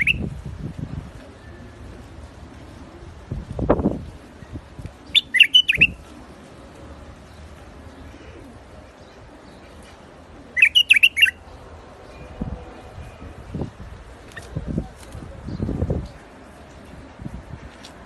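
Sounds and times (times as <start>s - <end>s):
bulbul singing: 0.0s - 0.3s, 5.0s - 6.0s, 10.4s - 11.5s.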